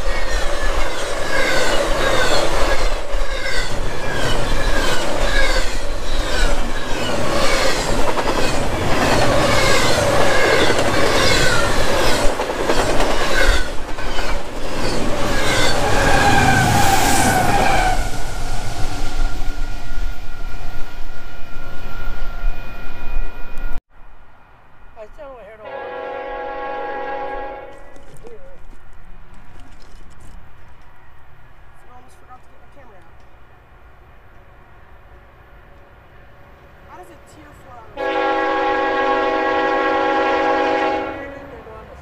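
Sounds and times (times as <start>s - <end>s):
train wheels clattering over rail: 0.0s - 17.8s.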